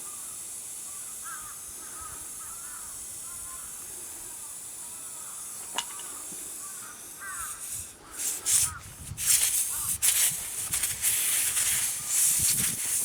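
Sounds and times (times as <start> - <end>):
steady high hiss: 0.0 - 13.0
bird calling: 0.9 - 8.9.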